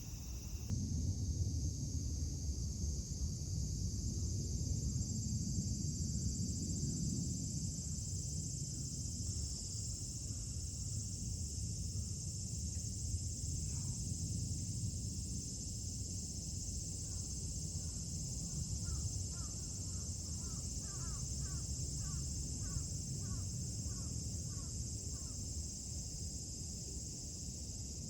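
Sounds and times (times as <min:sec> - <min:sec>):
insects calling: 0:00.0 - 0:00.7, 0:16.6 - 0:25.9.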